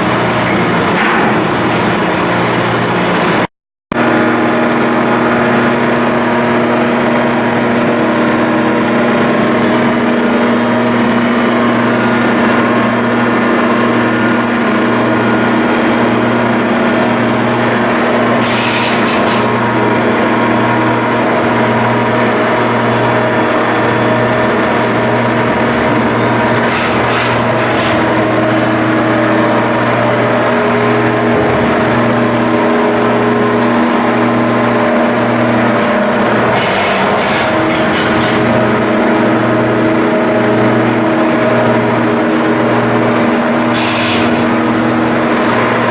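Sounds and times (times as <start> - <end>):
diesel engine humming: 4.0 - 45.9
hissing bursts: 18.4 - 19.5, 43.7 - 44.6.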